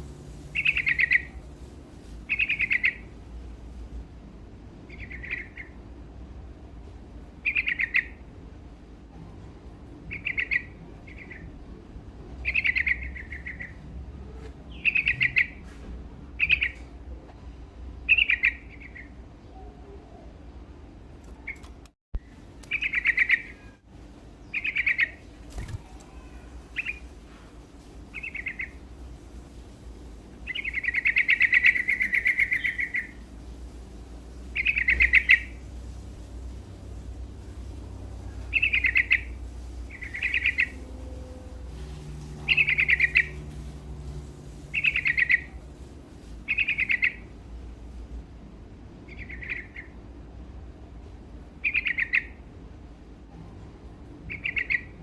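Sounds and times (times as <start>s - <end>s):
steady low hum: 0.0s - 55.0s
bulbul singing: 0.5s - 1.4s, 2.3s - 3.1s, 4.9s - 5.8s, 7.4s - 8.2s, 12.4s - 13.8s, 21.4s - 23.8s, 24.4s - 27.1s, 28.1s - 28.8s, 30.4s - 33.2s, 34.5s - 35.6s, 38.3s - 41.1s, 42.0s - 44.0s, 44.7s - 45.6s, 46.5s - 47.3s, 54.3s - 55.0s.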